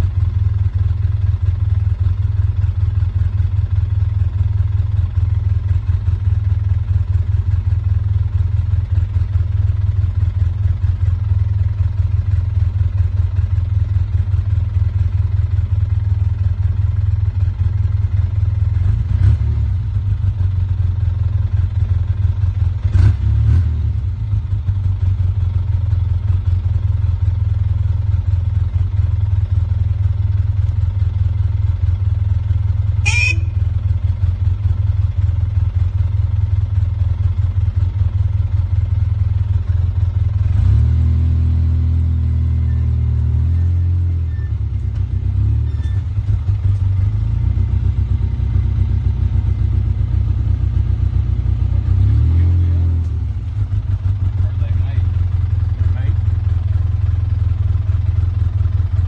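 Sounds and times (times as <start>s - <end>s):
short sharp sound: 33.0s - 33.6s
steady low rumble: 46.0s - 59.0s.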